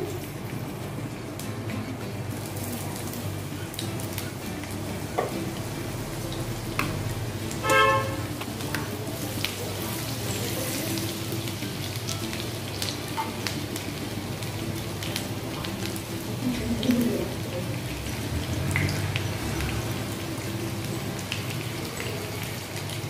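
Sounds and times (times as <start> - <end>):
ginger and garlic sizzling in oil: 0.0 - 23.0
horn-like toot: 7.6 - 8.3.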